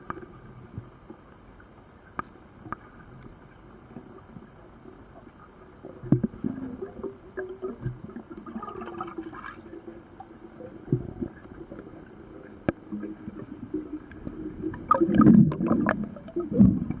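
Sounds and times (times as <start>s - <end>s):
muffled water gurgling and sloshing: 0.0s - 17.0s
water splashing: 5.9s - 17.0s.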